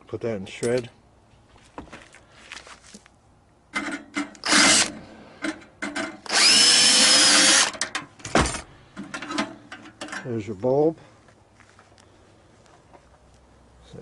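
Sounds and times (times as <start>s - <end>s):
power drill spinning: 4.4s - 5.0s, 6.2s - 7.8s.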